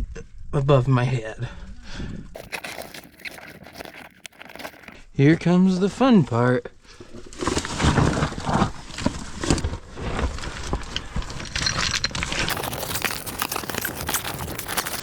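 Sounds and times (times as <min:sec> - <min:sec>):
clothing and gear dragging over rock: 0:02.4 - 0:05.0, 0:07.6 - 0:15.0.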